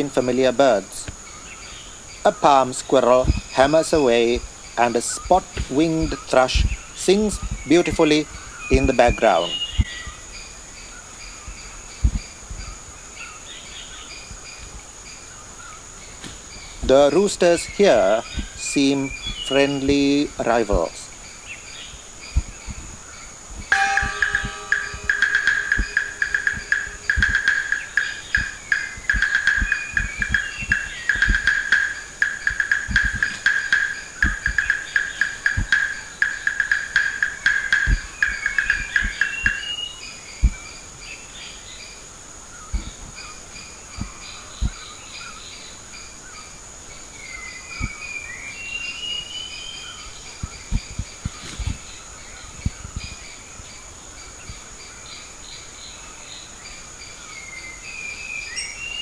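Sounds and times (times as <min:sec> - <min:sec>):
bird song with whistled glides: 0:00.0 - 0:59.0
high insect drone: 0:00.0 - 0:59.0
squirrel chirping: 0:22.3 - 0:40.2
soft low thumps: 0:23.6 - 0:36.0.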